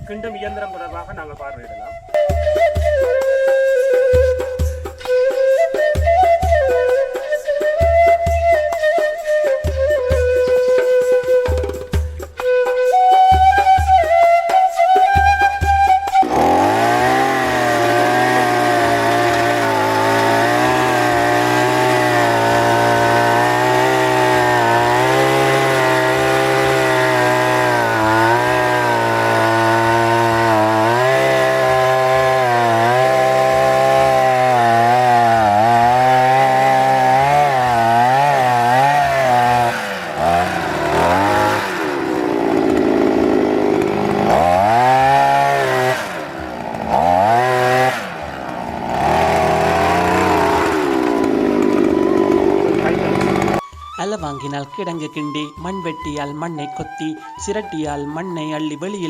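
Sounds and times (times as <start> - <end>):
earth auger engine running: 16.2 - 53.6.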